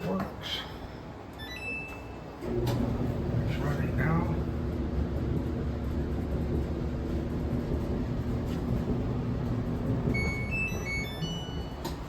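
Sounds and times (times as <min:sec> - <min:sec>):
clothes dryer humming: 0:01.0 - 0:12.0
electronic chime beeps: 0:10.2 - 0:11.8.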